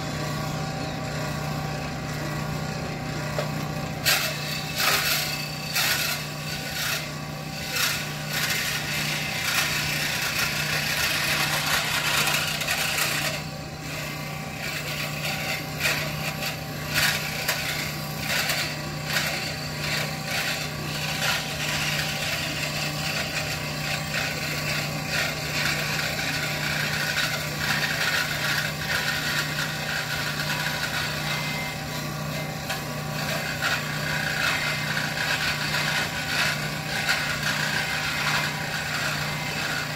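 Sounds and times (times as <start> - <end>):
power tool grinding: 0.0 - 39.9.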